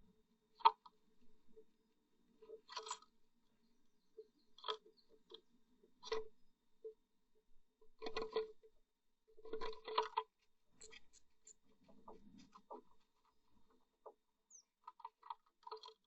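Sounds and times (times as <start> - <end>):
bird scratching and tapping on wood: 9.4 - 14.2.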